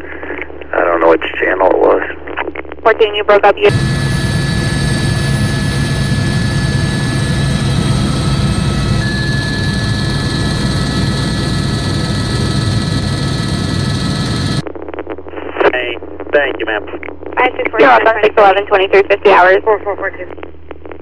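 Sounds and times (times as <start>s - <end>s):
helicopter engine and rotor drone: 3.6s - 14.6s
high turbine whine: 3.6s - 20.2s.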